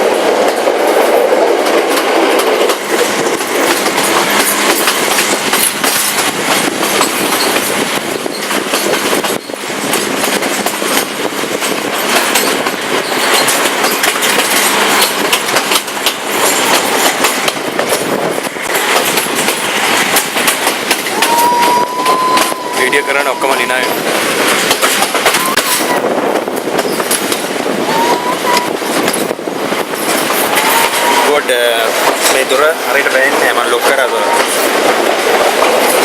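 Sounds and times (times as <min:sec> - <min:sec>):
passenger train rushing and rattling: 0:00.0 - 0:36.0
wheels clicking over track: 0:00.1 - 0:22.6, 0:24.0 - 0:27.5.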